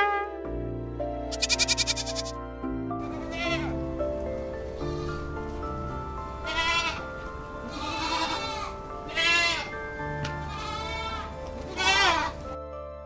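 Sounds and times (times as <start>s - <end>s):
background music with held notes: 0.0s - 13.0s
farm animal bleating: 1.4s - 2.3s.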